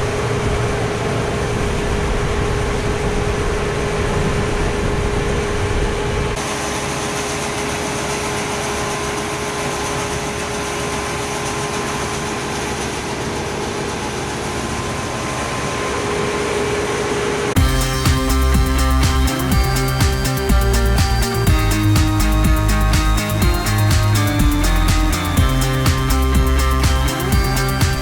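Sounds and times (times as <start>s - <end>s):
steady machine whine: 0.0s - 28.0s
harvest machinery running: 6.2s - 28.0s
low rumble: 17.6s - 28.0s.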